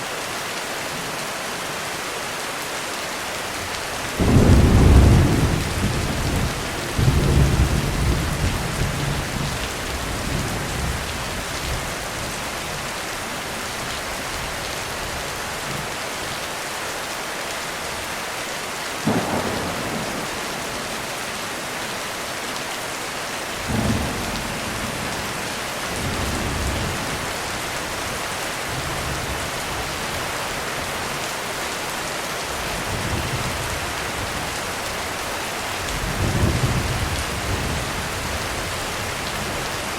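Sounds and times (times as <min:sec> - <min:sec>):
heavy rain falling: 0:00.0 - 0:39.9
thunder rumbling: 0:04.2 - 0:11.2, 0:19.0 - 0:21.9
sharp thunder crack: 0:19.1 - 0:21.0.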